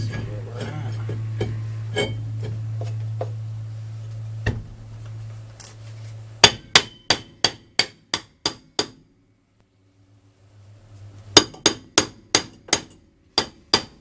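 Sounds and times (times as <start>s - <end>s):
hammer tapping metal: 0.0s - 3.4s, 6.4s - 9.0s, 11.4s - 14.0s
steady low hum: 0.0s - 14.0s.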